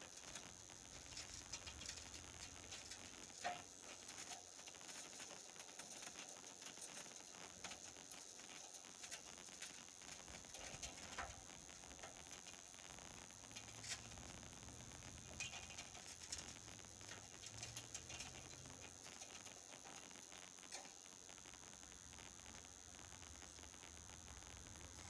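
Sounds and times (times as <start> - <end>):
faint low hum: 0.0 - 25.0
steady hiss: 0.0 - 25.0.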